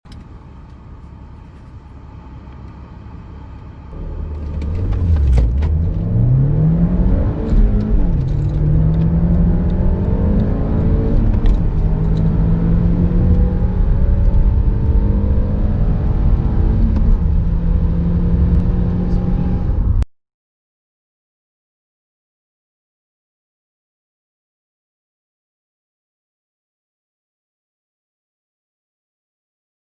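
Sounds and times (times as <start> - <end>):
car engine accelerating: 2.4 - 20.1.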